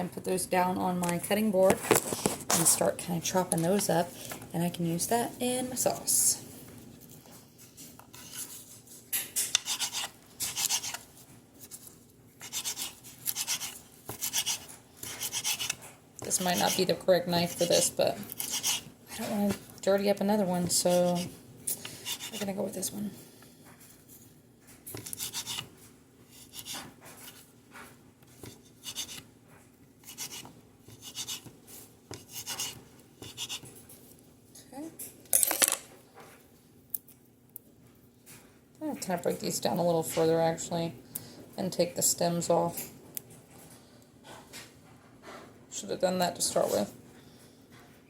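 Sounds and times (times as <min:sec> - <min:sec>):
blade scraping board: 0:09.4 - 0:11.0, 0:12.4 - 0:19.6, 0:30.0 - 0:33.7.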